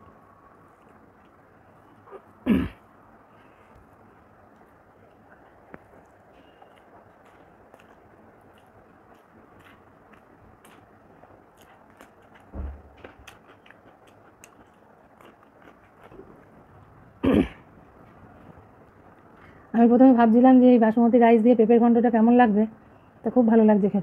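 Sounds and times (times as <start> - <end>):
person chewing: 0.5 - 2.4, 3.6 - 17.0.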